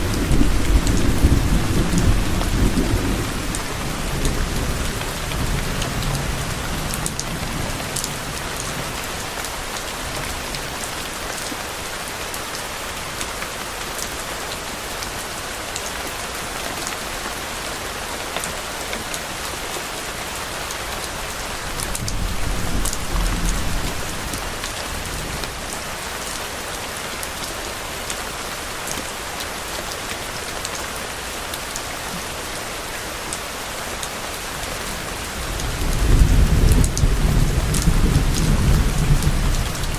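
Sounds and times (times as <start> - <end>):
distant thunder rumble: 0.0 - 8.3, 21.8 - 25.3
rain falling: 0.0 - 39.9.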